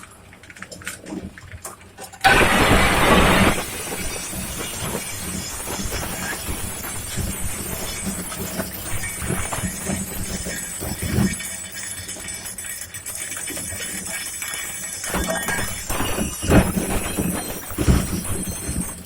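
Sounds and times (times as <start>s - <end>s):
shredder running: 2.2s - 11.4s
glass crunching and clinking: 2.3s - 19.0s.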